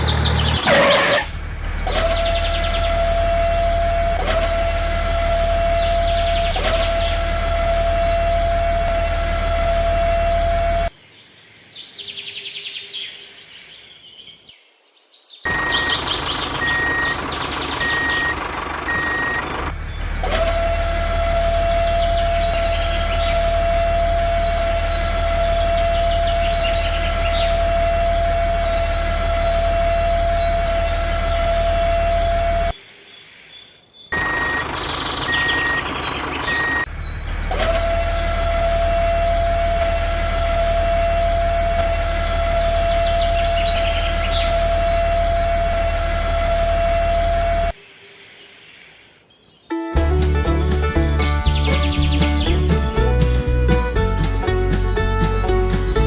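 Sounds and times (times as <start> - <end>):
birds chirping: 0.0 - 9.3, 10.9 - 38.4, 39.6 - 56.0
motor hum with high whine: 0.0 - 11.1, 15.5 - 49.3
beeps: 15.5 - 19.5, 34.2 - 36.9.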